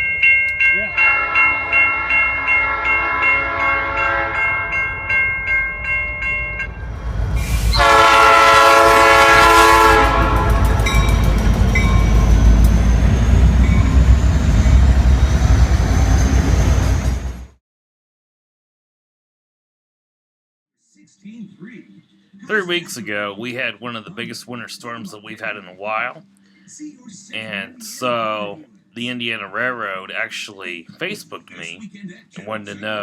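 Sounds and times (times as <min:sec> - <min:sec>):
railroad crossing bell ringing: 0:00.0 - 0:07.1, 0:07.7 - 0:16.4
train horn: 0:00.8 - 0:04.9, 0:07.6 - 0:15.3.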